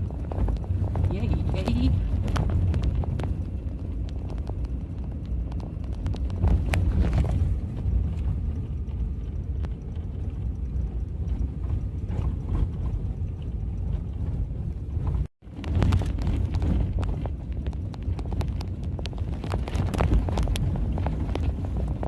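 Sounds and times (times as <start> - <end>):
knocks and rattles: 0.0 - 22.0
truck engine and tyres rumble: 0.0 - 22.0.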